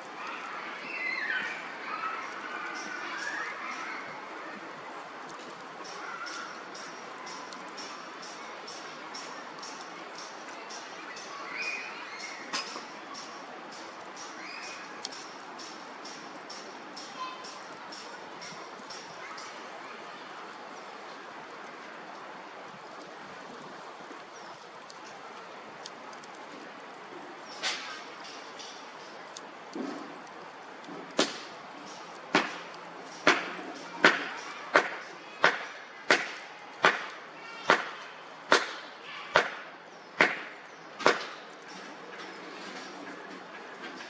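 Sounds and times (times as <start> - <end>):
fire crackles and pops: 4.6 - 11.4, 12.1 - 44.0
bonfire rushing: 20.4 - 39.6.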